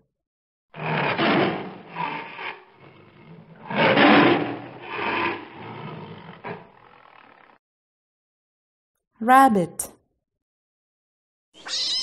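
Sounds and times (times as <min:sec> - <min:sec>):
tiger roaring: 0:00.8 - 0:07.6.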